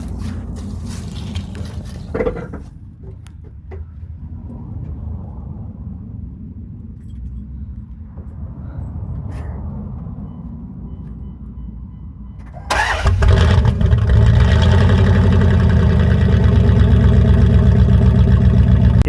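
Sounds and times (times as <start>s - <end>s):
low steady rumble: 0.0s - 19.0s
pickup engine starting and running: 12.4s - 19.0s.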